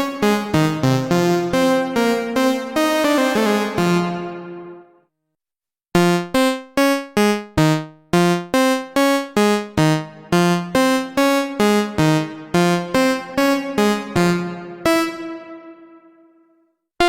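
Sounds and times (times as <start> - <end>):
sequenced plucked synth notes: 6.0 - 16.6.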